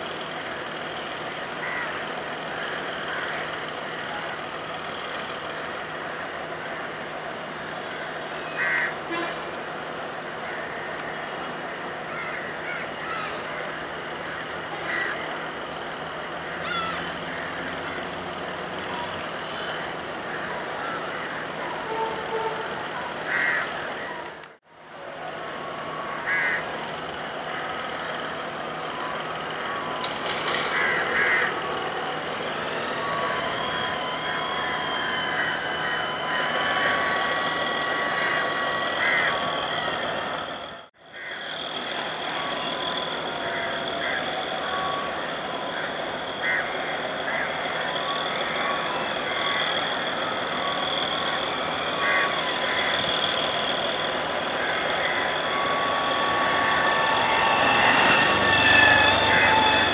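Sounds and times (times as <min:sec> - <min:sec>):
diesel train running slowly: 0:00.0 - 0:59.9
steady high tone: 0:12.9 - 0:40.9, 0:41.5 - 0:59.9
short high-pitched tones: 0:47.8 - 0:59.9.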